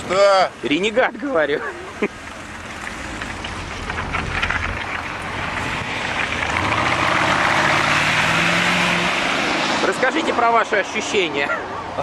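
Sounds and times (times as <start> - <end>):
road noise: 0.0 - 12.0
car engine accelerating hard: 5.2 - 10.7.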